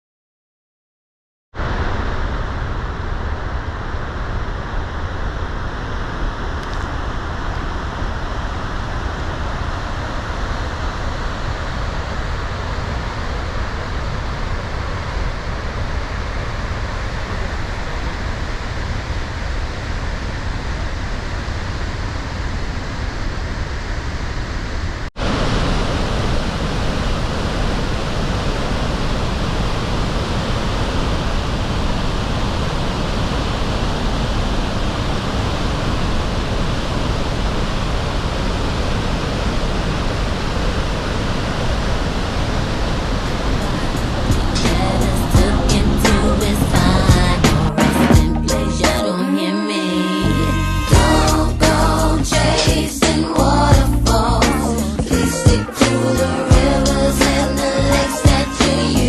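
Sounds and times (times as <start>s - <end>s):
waterfall rushing: 25.2s - 59.0s.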